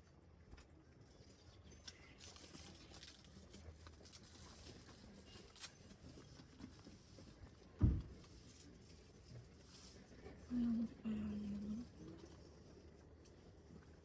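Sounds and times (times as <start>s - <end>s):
small clicks and rustles: 0.0s - 10.5s
low steady hum: 7.9s - 14.0s.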